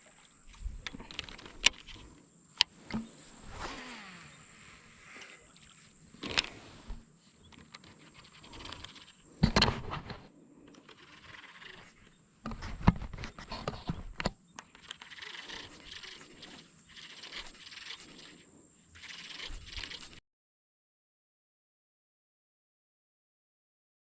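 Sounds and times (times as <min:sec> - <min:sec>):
fishing gear knocking and clacking: 0:00.0 - 0:03.7, 0:06.1 - 0:16.5
rustling: 0:00.0 - 0:20.2.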